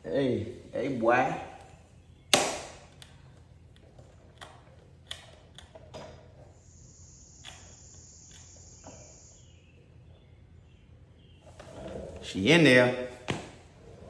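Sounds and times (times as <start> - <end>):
steady high hiss: 6.3 - 10.0.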